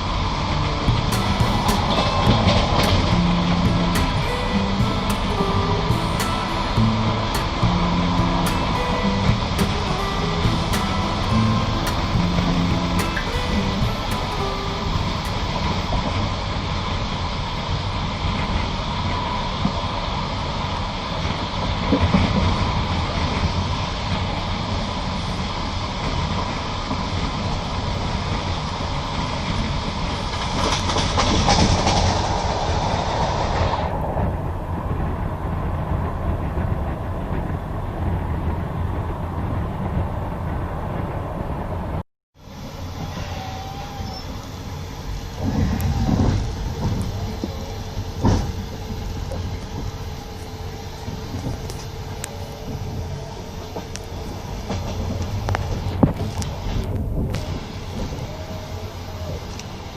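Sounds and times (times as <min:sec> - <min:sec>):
loud train clunks: 0:00.0 - 0:59.9
train rolling noise: 0:00.0 - 0:59.9
wheels knocking over rail joints: 0:45.4 - 0:50.2.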